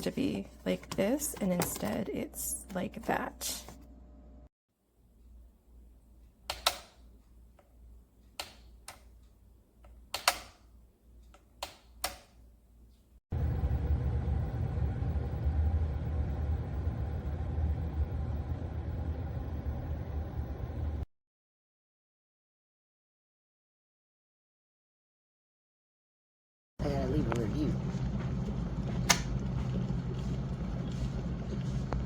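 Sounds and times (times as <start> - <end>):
loud steady rumbling: 13.3 - 21.0, 26.8 - 32.0.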